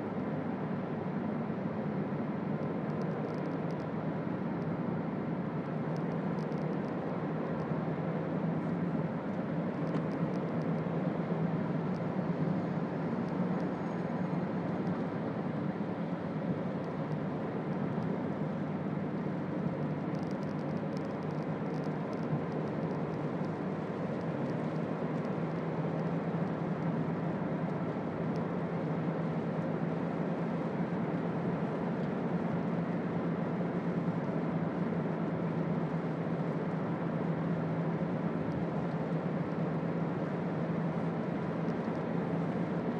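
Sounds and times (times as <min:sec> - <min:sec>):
car engine hum in cabin: 0:00.0 - 0:42.9
road and tyre noise: 0:00.0 - 0:42.9
faint ticks: 0:05.9 - 0:07.0, 0:19.2 - 0:26.9.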